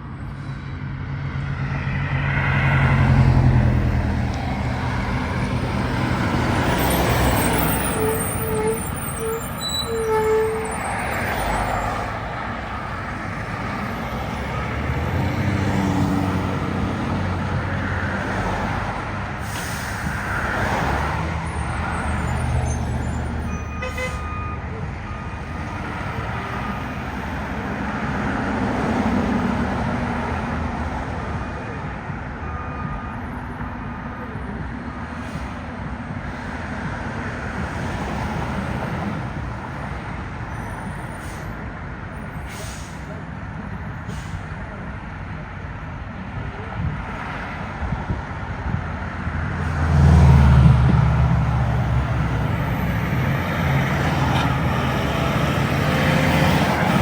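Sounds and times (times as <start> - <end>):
air brake hiss: 19.4 - 20.2, 41.1 - 41.6, 42.4 - 43.2, 44.1 - 44.5.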